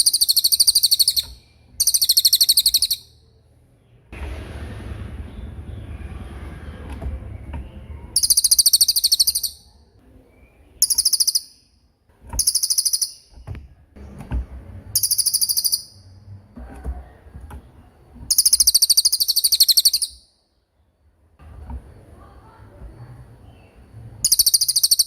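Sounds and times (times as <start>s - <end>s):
songbird high rattling trills: 0.0s - 3.1s, 12.4s - 13.4s, 15.0s - 16.0s, 18.3s - 20.2s.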